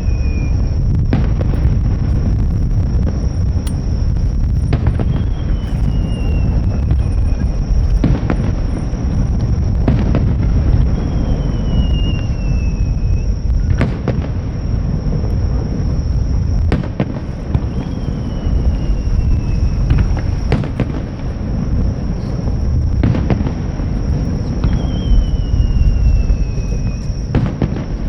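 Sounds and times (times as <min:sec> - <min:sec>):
falling whistle: 0:00.0 - 0:01.2, 0:04.2 - 0:10.0, 0:10.6 - 0:13.8, 0:17.6 - 0:20.8, 0:24.0 - 0:27.3
fireworks booming rumble: 0:00.0 - 0:28.0
fireworks bursts cracking: 0:00.0 - 0:28.0.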